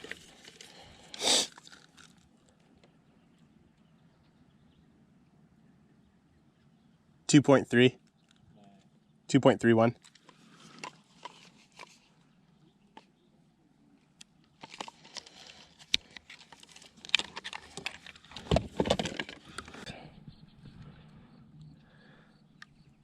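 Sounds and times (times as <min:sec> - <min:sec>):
clicks and knocks of handling: 0:10.0 - 0:12.0, 0:14.2 - 0:19.9.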